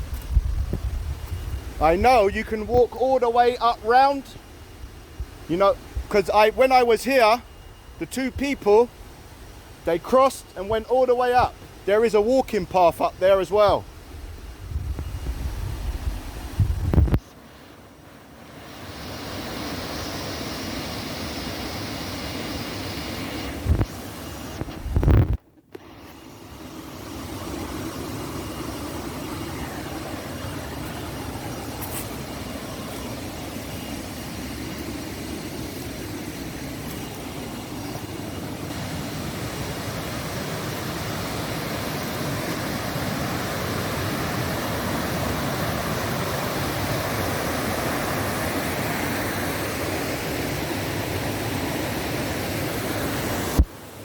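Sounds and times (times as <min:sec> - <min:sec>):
waterfall rushing: 0:27.0 - 0:53.6.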